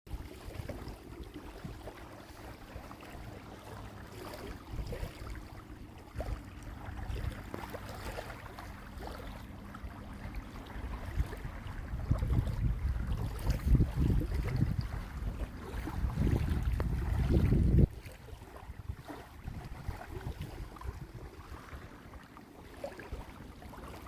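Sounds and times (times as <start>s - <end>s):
faint steady hum: 0.1s - 24.0s
wind rumble on microphone: 0.1s - 24.0s.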